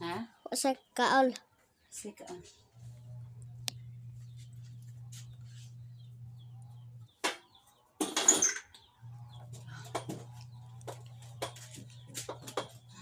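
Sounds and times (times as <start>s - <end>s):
steady low hum: 2.7s - 7.2s, 9.0s - 13.0s.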